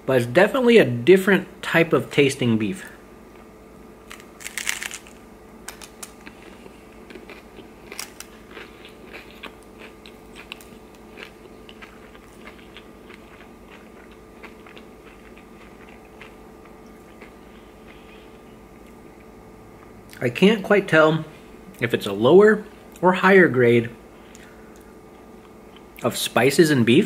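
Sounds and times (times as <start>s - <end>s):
crunchy taco chewing: 3.3s - 20.2s.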